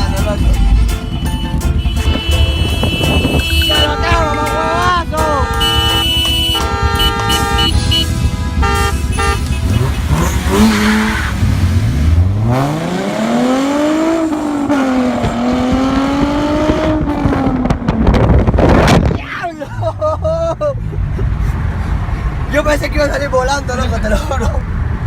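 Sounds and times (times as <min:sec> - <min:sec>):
car engine revving: 0:00.0 - 0:19.2
short horn-like tones: 0:01.2 - 0:10.2.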